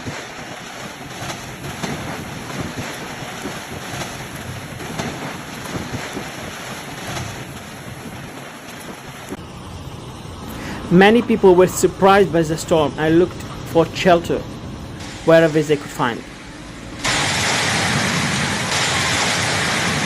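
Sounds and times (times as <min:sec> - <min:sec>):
hailstones hitting: 0:00.0 - 0:09.4, 0:17.0 - 0:20.0
strong wind rushing: 0:00.0 - 0:09.4.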